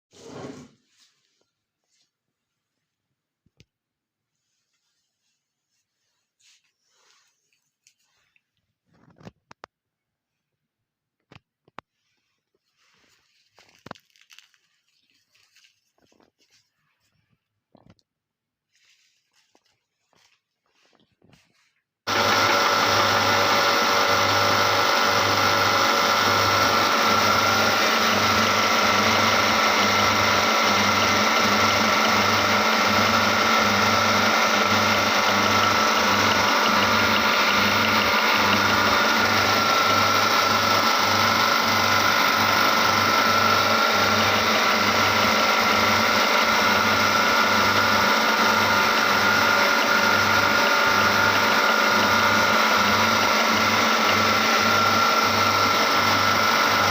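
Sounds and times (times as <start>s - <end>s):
meat grinder motor whining: 22.1s - 56.9s.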